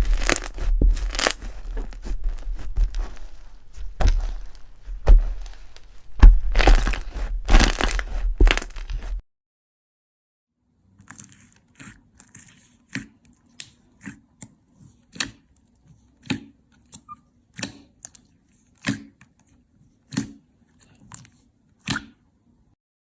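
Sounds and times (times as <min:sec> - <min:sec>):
slime crackling and popping: 0:00.0 - 0:09.2.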